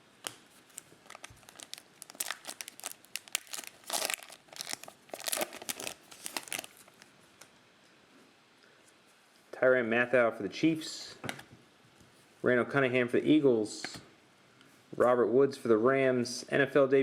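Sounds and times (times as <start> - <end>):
plastic wrapper crinkling and tearing: 0.6 - 7.1.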